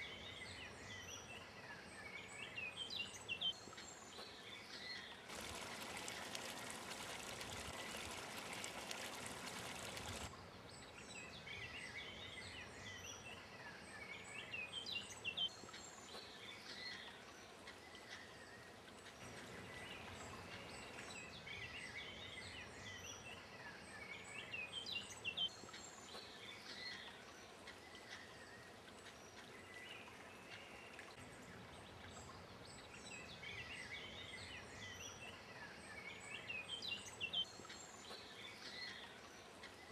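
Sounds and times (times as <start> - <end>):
small birds singing: 0.0 - 39.9
running water rush: 5.3 - 10.3.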